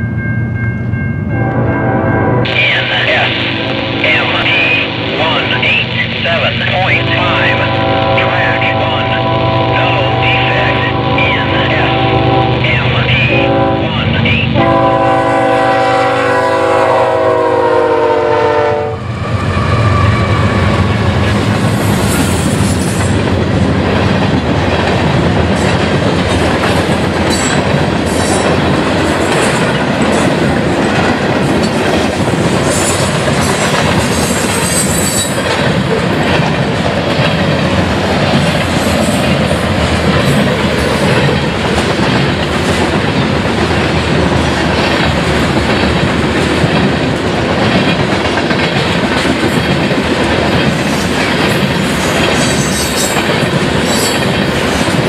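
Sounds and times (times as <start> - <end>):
locomotive air horn chord: 1.4 - 5.6, 6.7 - 19.1
freight cars clickety-clack: 20.7 - 55.0.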